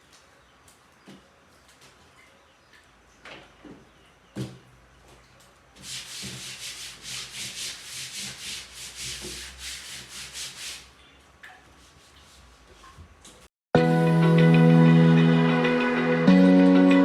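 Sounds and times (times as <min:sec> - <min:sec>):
scrubbing a hard surface: 0:05.8 - 0:11.0, 0:11.6 - 0:13.2.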